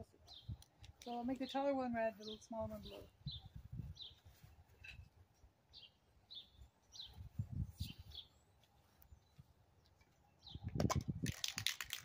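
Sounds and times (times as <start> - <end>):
wind rumble on microphone: 2.0 - 5.0, 7.0 - 8.2, 10.4 - 12.0.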